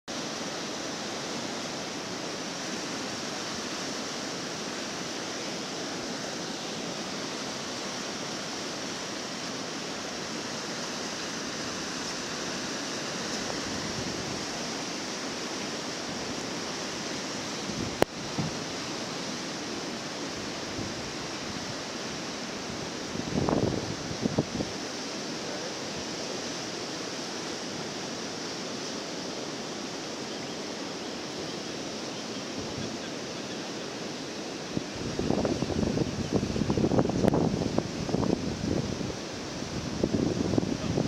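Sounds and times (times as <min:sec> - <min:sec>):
fast-flowing whitewater rushing: 0:00.1 - 0:41.0.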